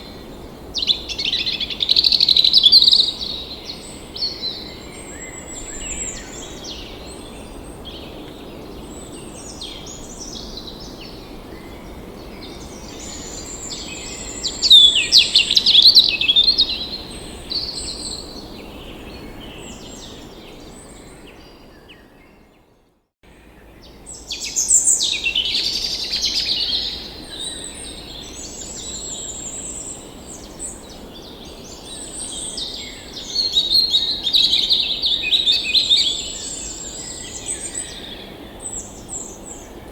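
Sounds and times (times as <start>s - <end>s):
low outdoor background hiss: 0.0s - 21.6s, 23.3s - 39.9s
birds chirping and trilling: 23.4s - 39.9s.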